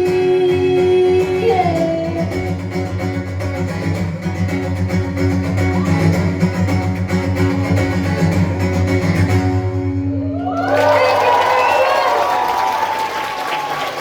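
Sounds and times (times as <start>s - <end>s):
guitars: 0.0s - 11.2s.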